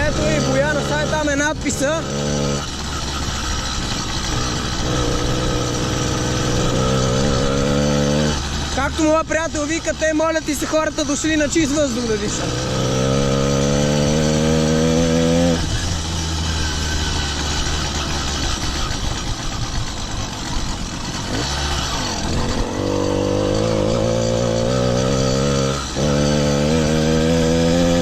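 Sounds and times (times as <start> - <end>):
motorized bicycle engine running: 0.0 - 8.8, 11.2 - 28.0.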